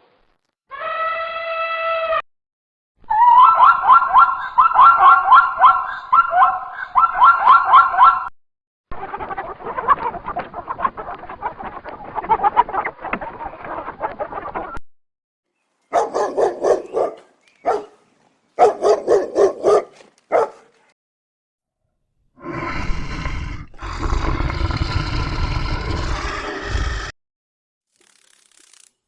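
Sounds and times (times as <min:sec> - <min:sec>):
animal barking: 0:03.2 - 0:08.3, 0:15.9 - 0:18.0, 0:18.6 - 0:20.7.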